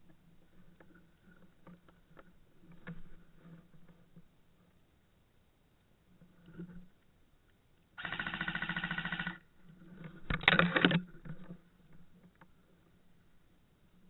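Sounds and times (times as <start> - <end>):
airsoft gun full-auto bursts: 8.0 - 9.4.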